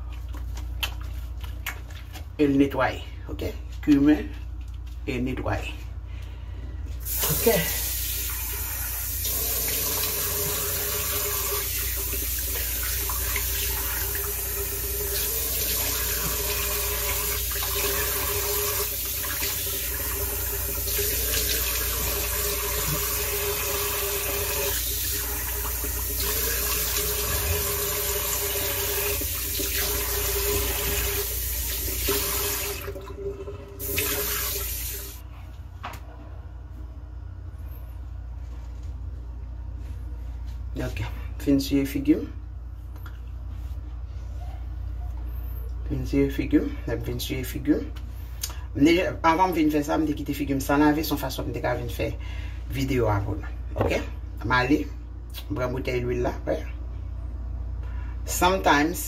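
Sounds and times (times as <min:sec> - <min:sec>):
tap water running into sink: 0:07.0 - 0:35.2.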